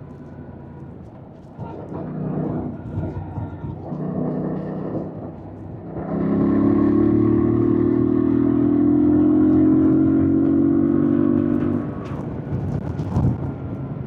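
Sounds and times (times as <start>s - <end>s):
motorcycle engine revving: 5.9s - 12.0s.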